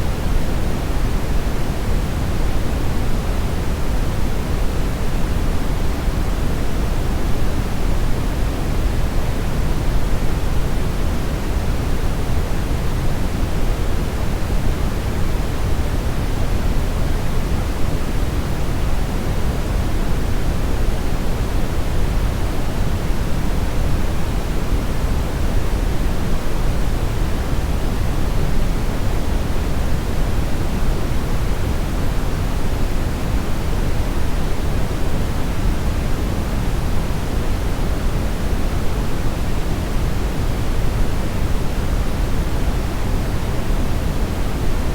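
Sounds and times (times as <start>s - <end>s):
deep brown noise hiss: 0.0s - 44.9s.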